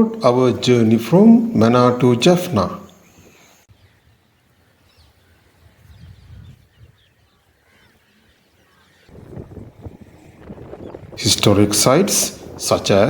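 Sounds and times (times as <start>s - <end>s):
birds chirping: 0.0s - 13.0s
wind rumble: 5.0s - 7.6s, 8.9s - 13.0s.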